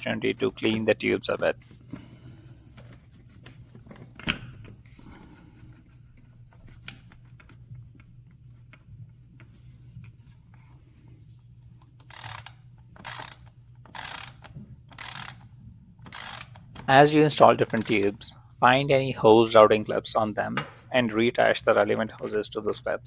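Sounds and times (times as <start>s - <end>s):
ratchet clicking: 12.0s - 16.9s, 17.6s - 18.2s.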